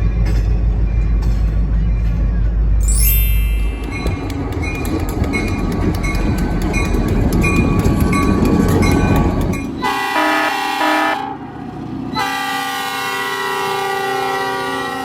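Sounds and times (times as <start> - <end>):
train wheel rumble: 0.0 - 15.0
locomotive air horn: 9.8 - 11.4, 12.2 - 15.0.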